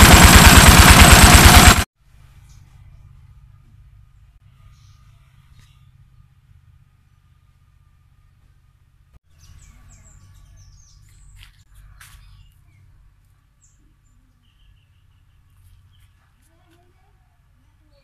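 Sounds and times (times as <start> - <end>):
small birds chirping: 9.3 - 17.2.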